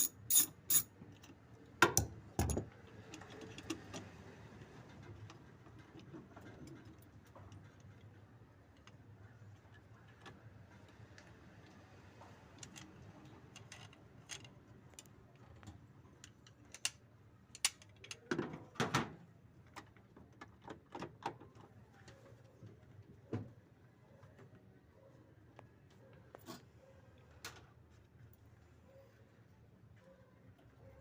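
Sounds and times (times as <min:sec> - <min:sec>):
metal parts clanking: 0:00.0 - 0:00.9.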